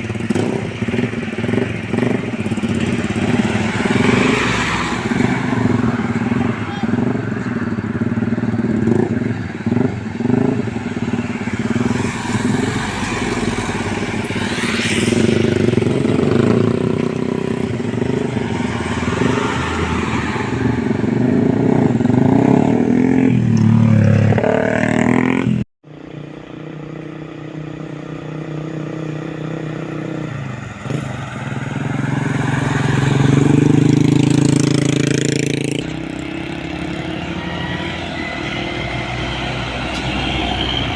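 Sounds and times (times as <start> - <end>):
truck engines passing by: 0.0 - 40.9.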